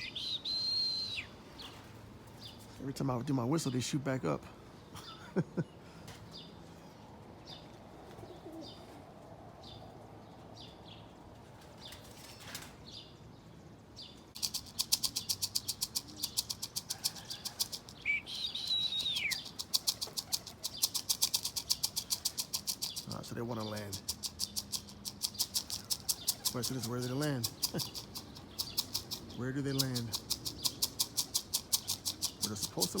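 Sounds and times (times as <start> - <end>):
falling whistle: 0.0 - 1.3
faint bird chirps: 0.0 - 1.8, 14.4 - 22.1
pigeon wingbeats: 14.4 - 33.0.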